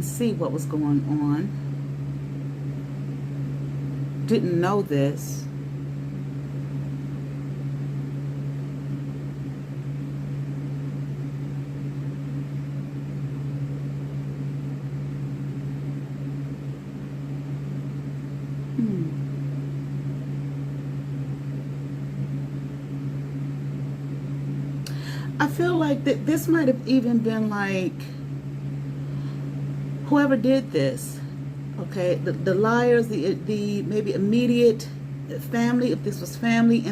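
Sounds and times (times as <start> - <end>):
machine humming: 0.0 - 36.9.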